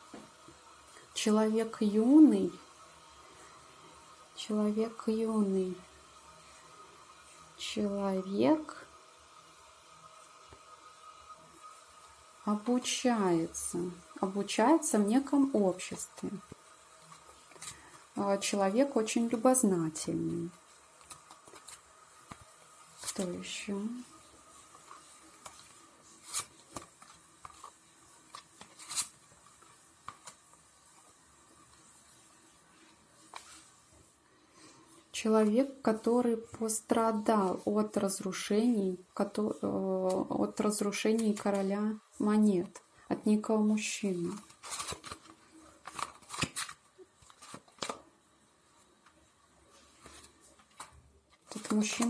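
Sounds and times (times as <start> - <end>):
faint card handling: 20.5 - 23.5, 24.5 - 31.2, 44.2 - 48.0, 49.7 - 52.0
cards sliding swishes: 24.7 - 30.4
crisp card snaps: 25.4 - 29.2, 44.4 - 48.0.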